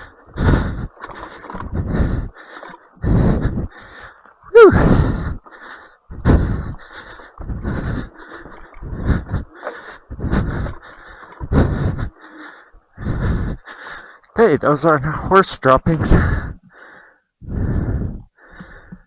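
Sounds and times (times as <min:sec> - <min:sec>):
person breathing hard: 0:00.0 - 0:14.4, 0:16.1 - 0:19.0
voiced falling sigh: 0:04.5 - 0:05.8.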